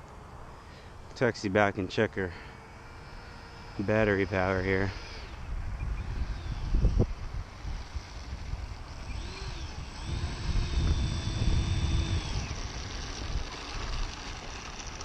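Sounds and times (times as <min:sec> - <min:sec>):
electric ducted-fan motors whining: 0:00.0 - 0:15.0
wind rumble on microphone: 0:03.9 - 0:15.0.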